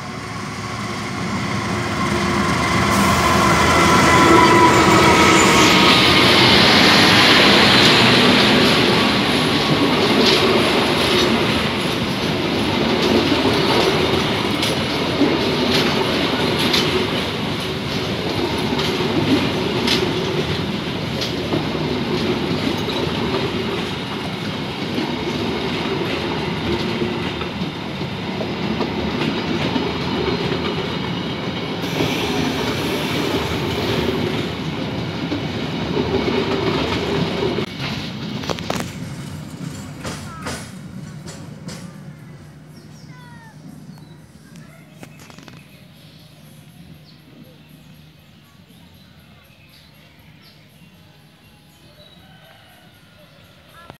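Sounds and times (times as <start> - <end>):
train rumble: 0.0 - 53.9
train wheels clicking over rail joints: 0.5 - 43.0.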